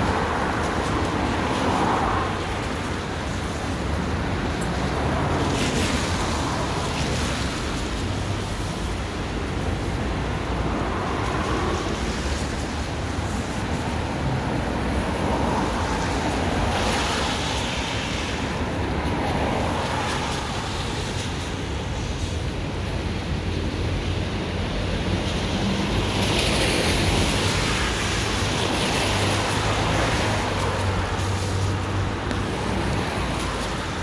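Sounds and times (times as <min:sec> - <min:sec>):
road traffic roar: 0:00.0 - 0:34.0
vehicle tyre hiss passing: 0:00.0 - 0:34.0.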